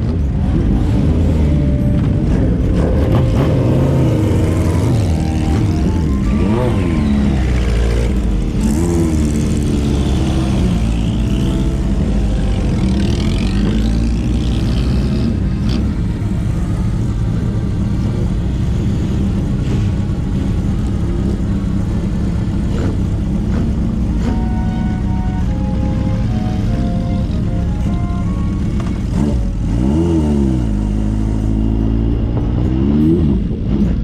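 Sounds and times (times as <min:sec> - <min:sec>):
motorcycle engine and exhaust: 0:00.0 - 0:34.0.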